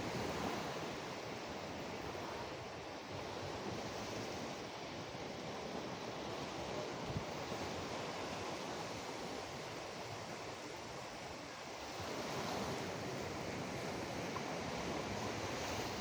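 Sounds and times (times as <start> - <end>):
sea waves washing ashore: 0.0 - 16.0.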